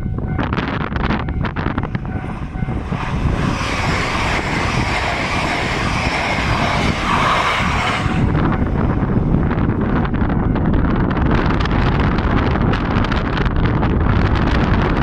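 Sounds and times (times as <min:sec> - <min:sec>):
crossing warning bell ringing: 0:00.0 - 0:03.0
wind rumbling on microphone: 0:00.0 - 0:15.0
train rushing past: 0:01.3 - 0:11.7.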